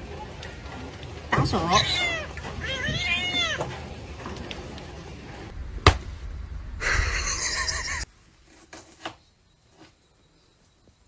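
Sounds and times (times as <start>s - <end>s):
background hiss: 4.8s - 11.0s
sharp bang: 5.5s - 7.1s.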